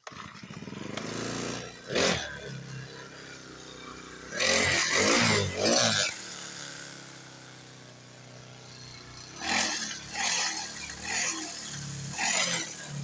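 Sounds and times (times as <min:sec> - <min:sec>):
dirt bike engine revving and idling: 0:00.0 - 0:13.0.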